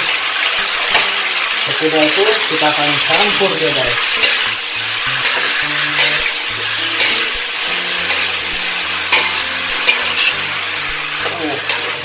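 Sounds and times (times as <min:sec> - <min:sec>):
pineapple sizzling in hot oil: 0:00.0 - 0:12.0
metal ladle scraping a wok: 0:02.5 - 0:12.0.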